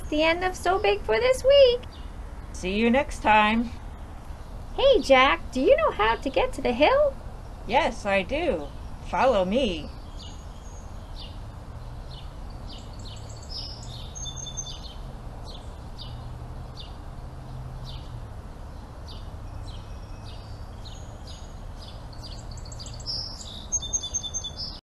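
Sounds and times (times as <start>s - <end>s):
steady low rumble: 0.0s - 14.2s
small birds chirping: 0.0s - 24.8s.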